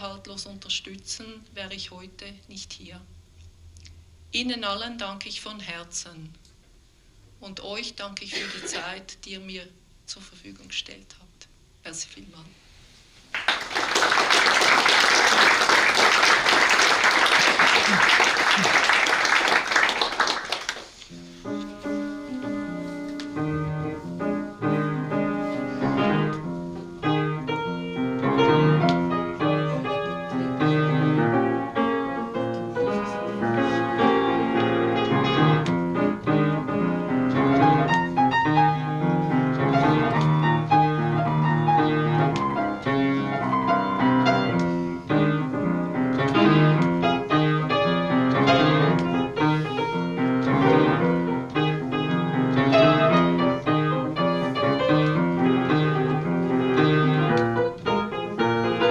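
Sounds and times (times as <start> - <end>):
piano playing: 13.4 - 58.9.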